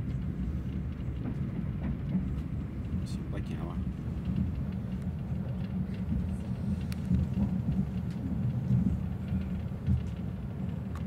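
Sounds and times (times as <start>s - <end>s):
train rumbling: 0.0s - 11.0s
faint clicks: 4.2s - 11.0s.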